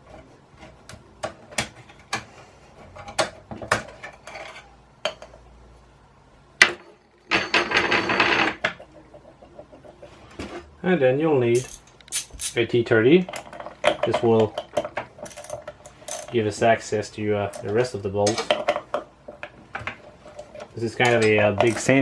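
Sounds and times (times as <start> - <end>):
metal parts and tools clicking: 11.5 - 12.6, 13.2 - 16.4, 20.2 - 22.0.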